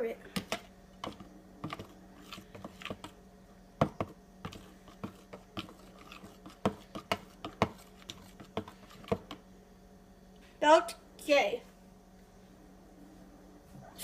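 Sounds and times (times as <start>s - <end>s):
utensil scraping a dish: 0.4s - 3.2s, 3.8s - 9.4s.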